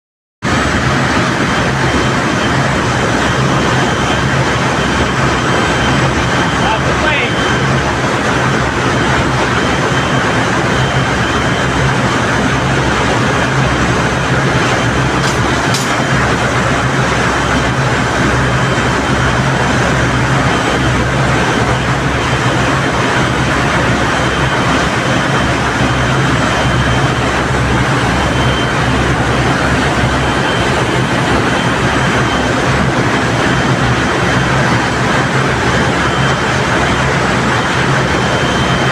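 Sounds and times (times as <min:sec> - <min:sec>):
centrifugal separator drone: 0:00.4 - 0:38.9
thin high tone: 0:01.6 - 0:07.9.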